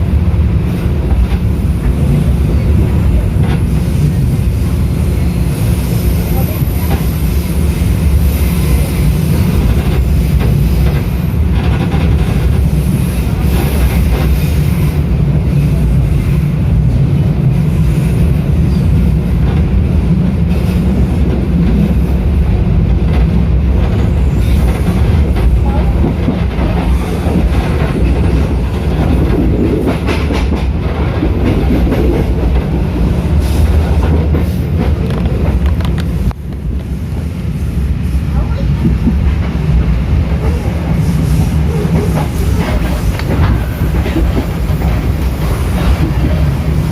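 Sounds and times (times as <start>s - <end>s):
train wheels rumbling on rail: 0.0s - 46.9s.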